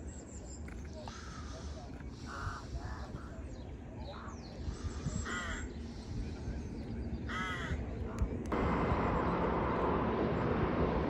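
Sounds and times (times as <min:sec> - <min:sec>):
steady low rumble: 0:01.1 - 0:11.0
crows cawing: 0:05.2 - 0:05.7, 0:07.3 - 0:07.8.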